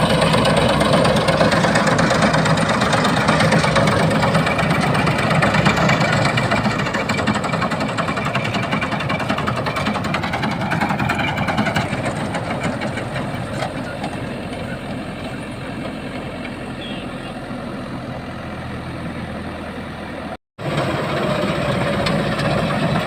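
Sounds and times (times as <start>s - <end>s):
combine harvester engine running: 0.0s - 23.0s.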